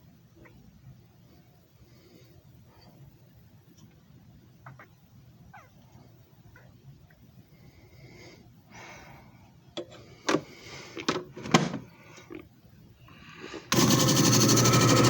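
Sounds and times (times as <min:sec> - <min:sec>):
machine motor running: 0:13.7 - 0:15.0.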